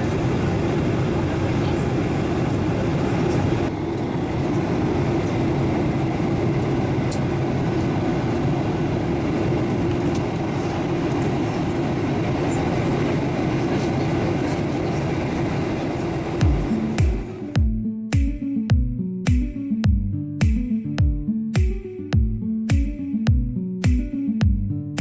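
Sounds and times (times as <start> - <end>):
airliner cabin rumble: 0.0 - 17.6.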